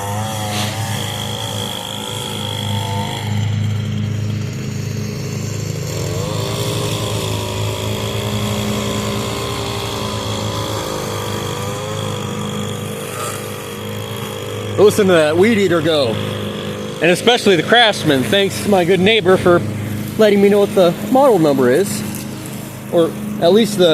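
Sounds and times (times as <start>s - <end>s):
distant riding mower hum: 0.0s - 23.9s
string trimmer running: 0.0s - 23.9s.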